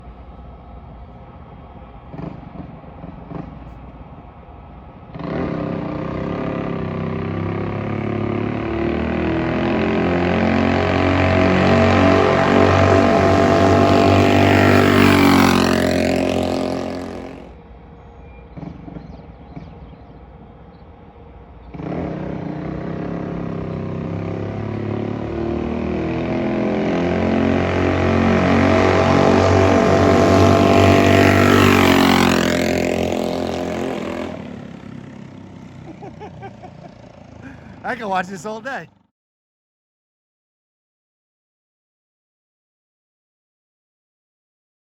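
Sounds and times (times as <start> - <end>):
small engine revving: 5.1 - 17.6, 21.7 - 37.8.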